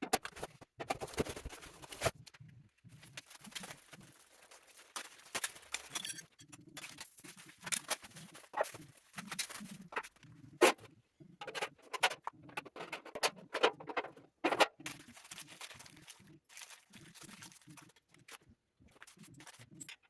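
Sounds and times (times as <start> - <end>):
rustling: 1.0 - 6.0.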